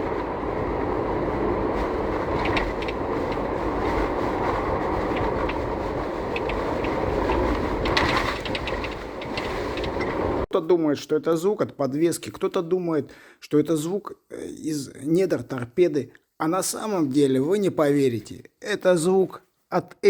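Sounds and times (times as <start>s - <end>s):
road and tyre rumble: 0.0s - 10.5s
light rattles: 1.8s - 4.2s, 4.9s - 10.4s.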